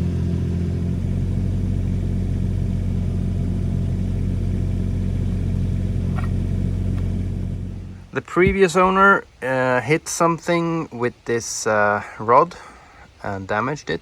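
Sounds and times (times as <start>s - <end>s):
excavator diesel engine idling: 0.0s - 9.0s.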